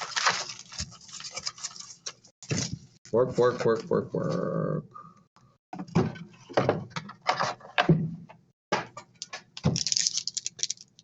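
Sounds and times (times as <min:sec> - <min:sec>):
pack wrappers crinkling: 0:00.0 - 0:02.3, 0:09.7 - 0:11.0.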